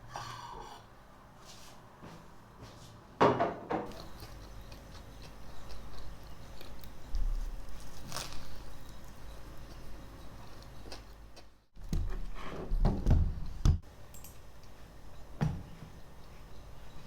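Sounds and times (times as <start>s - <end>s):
dull knocks and thunks: 11.8s - 13.8s.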